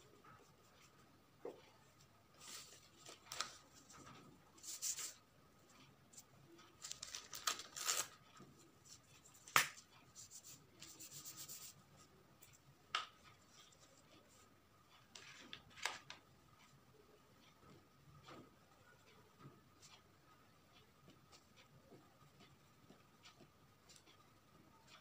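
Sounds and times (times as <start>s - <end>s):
pencil scratching on paper: 10.0s - 12.6s.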